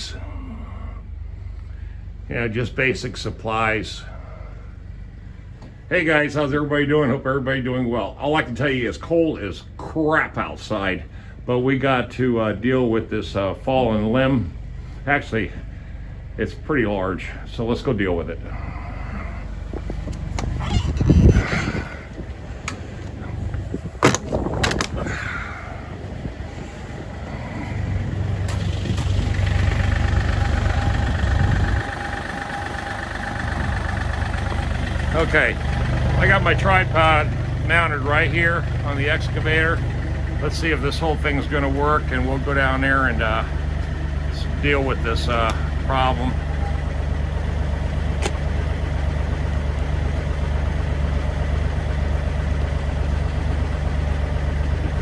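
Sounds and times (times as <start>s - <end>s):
excavator diesel engine idling: 0.0s - 55.0s
steady whine: 0.0s - 55.0s.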